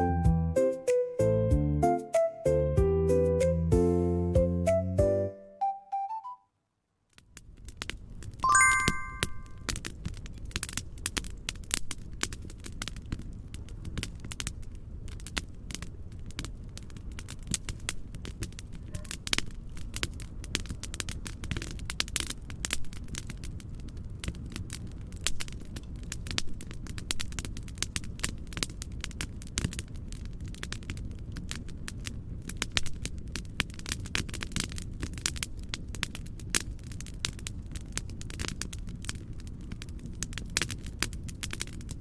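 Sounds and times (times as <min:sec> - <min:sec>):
fire crackling and popping: 0:07.0 - 0:08.5, 0:09.6 - 0:42.0
chime ringing: 0:08.5 - 0:09.6.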